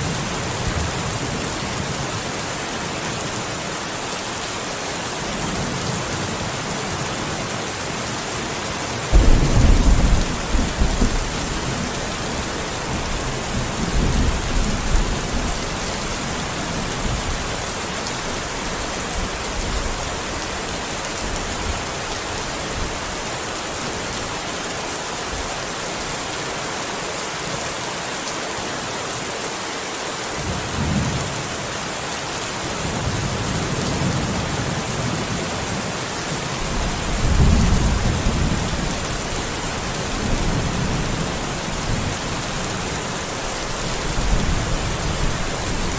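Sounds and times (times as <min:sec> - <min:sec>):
steady rain falling: 0:00.0 - 0:45.9
thunder rumbling: 0:09.1 - 0:15.6, 0:36.6 - 0:45.9.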